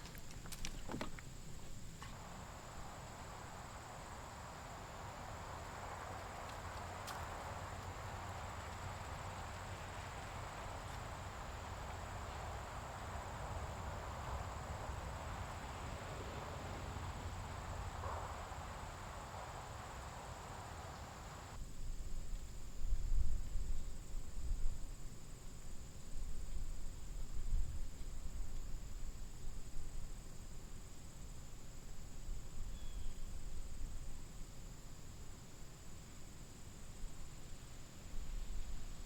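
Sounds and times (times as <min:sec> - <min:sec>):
high insect trill: 0:00.0 - 0:21.6, 0:30.7 - 0:39.0
soft rushing hiss: 0:00.0 - 0:39.0.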